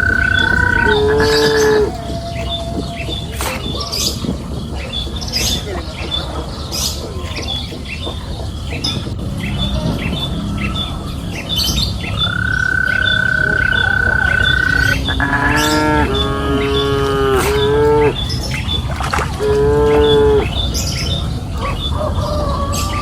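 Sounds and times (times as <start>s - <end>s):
cow mooing: 0.0s - 2.0s, 12.4s - 18.2s, 19.4s - 20.5s
bird chirping: 0.0s - 23.0s
steady high tone: 10.0s - 16.2s.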